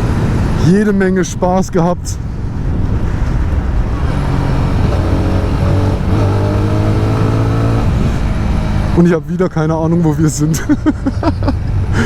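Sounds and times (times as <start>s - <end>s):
wind rushing over microphone: 0.0s - 10.0s
motorcycle engine running: 3.9s - 9.0s.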